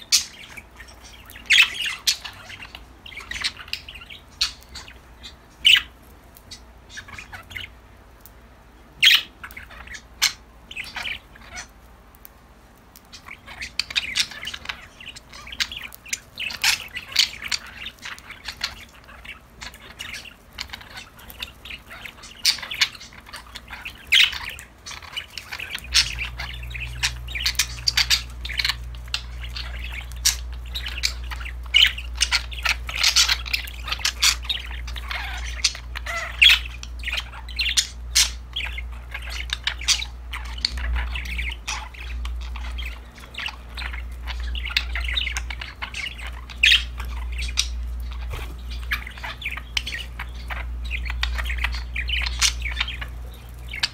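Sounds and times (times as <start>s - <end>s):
budgerigars chirping and squawking: 0.0s - 8.3s, 8.9s - 11.9s, 12.9s - 53.9s
low hum: 25.6s - 33.0s.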